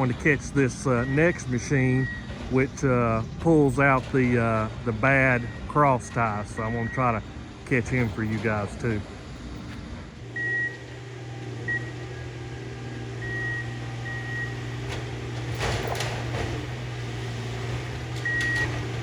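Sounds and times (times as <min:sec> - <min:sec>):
diesel engine running: 0:00.0 - 0:19.0
short high alarm beeps: 0:06.5 - 0:07.2, 0:10.4 - 0:10.8, 0:11.7 - 0:12.2, 0:13.2 - 0:14.6.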